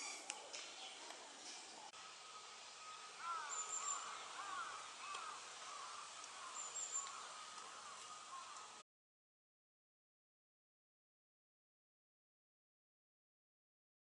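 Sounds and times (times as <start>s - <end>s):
birds short arched chirps: 0.0s - 0.3s.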